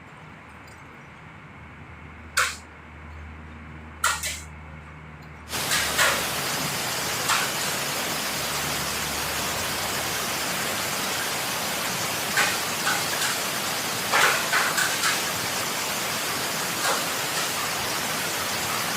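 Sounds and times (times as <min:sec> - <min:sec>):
heavy rain hissing: 0:05.5 - 0:18.9.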